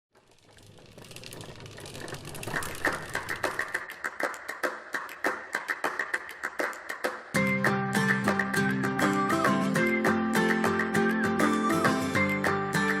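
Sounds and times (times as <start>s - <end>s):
rapid irregular clicking: 0.2s - 7.1s.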